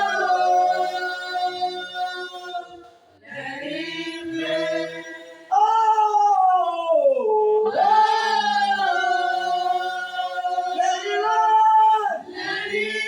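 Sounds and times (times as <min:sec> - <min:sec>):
choir holding long notes: 0:00.0 - 0:05.6, 0:07.6 - 0:13.0
lead voice singing: 0:00.0 - 0:13.0.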